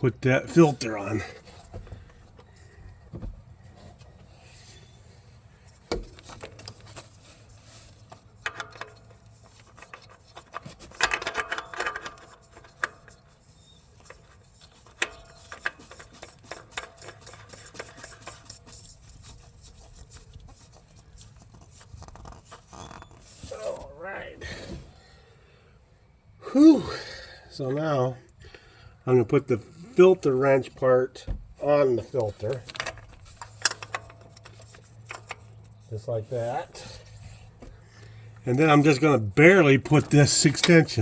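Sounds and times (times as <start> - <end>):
clicks and knocks on engine: 8.1 - 13.2
scraping rub: 12.2 - 24.0.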